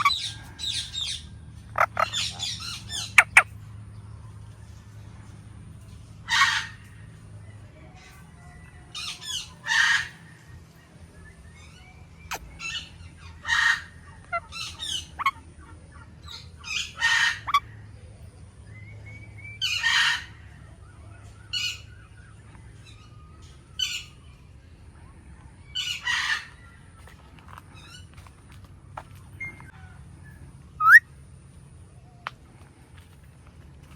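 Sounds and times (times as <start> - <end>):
parakeet squawking: 0.0 - 3.5, 6.3 - 6.8, 12.3 - 15.4, 16.3 - 17.6, 30.8 - 31.0
parakeet chirps and chatter: 0.0 - 3.7, 6.2 - 7.0, 11.6 - 17.8, 19.6 - 20.7, 30.8 - 31.0.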